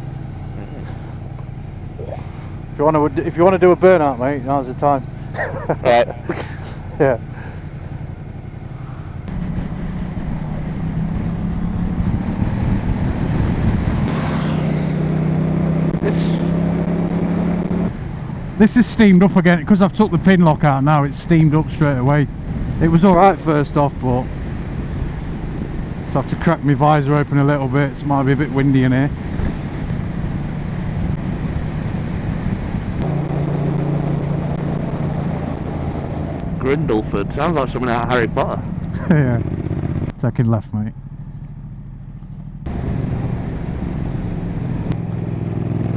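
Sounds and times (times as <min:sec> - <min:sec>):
motorcycle engine accelerating: 0:00.0 - 0:40.2, 0:40.9 - 0:45.9
wind noise: 0:09.3 - 0:18.7, 0:19.8 - 0:40.2.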